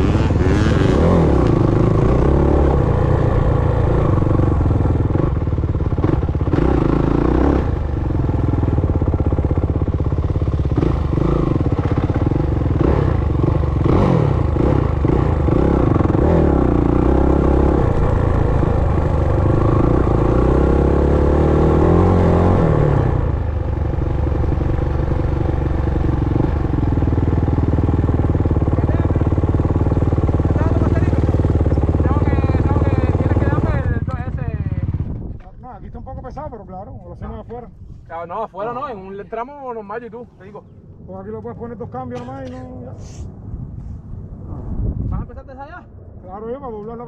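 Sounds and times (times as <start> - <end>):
dirt bike engine revving: 0.0 - 34.1.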